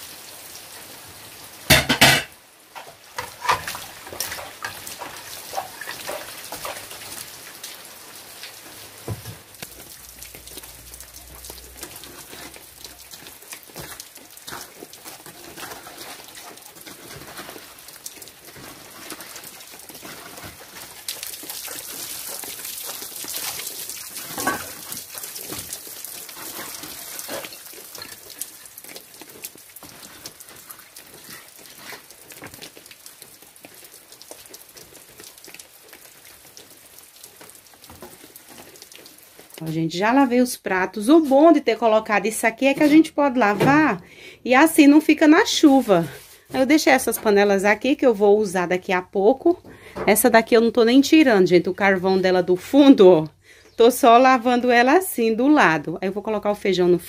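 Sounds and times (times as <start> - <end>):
steady rain falling: 0.0 - 48.5
metal pots and dishes clinking: 1.7 - 3.8, 24.3 - 24.8.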